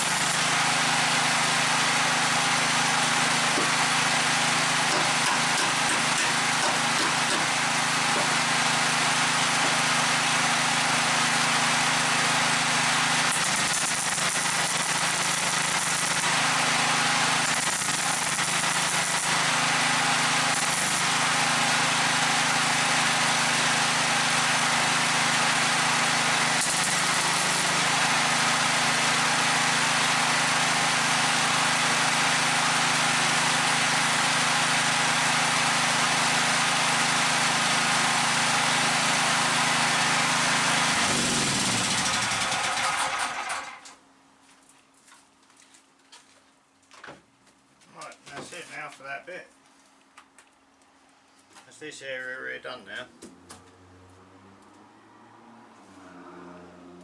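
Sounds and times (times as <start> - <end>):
welder buzzing hiss: 0.0 - 0.6, 13.2 - 22.8, 25.8 - 28.6.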